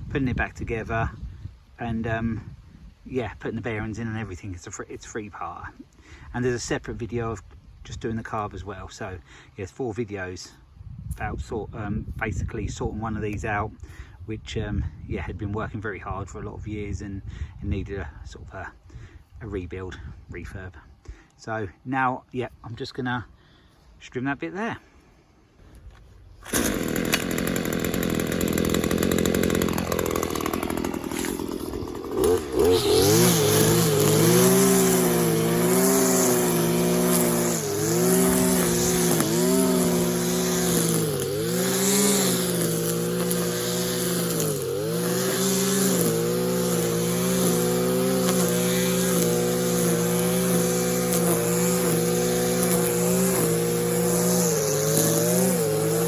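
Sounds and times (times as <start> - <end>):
two-stroke trimmer engine revving: 26.4 - 56.0.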